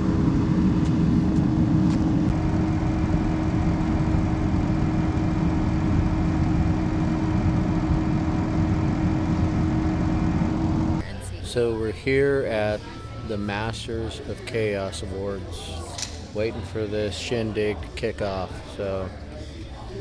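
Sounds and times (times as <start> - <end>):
road vehicle running drone: 0.0 - 11.1.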